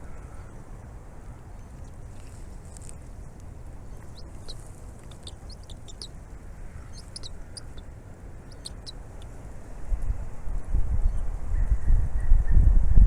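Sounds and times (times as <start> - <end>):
birds chirping: 0.0 - 9.7
wind rumbling on microphone: 0.0 - 13.0.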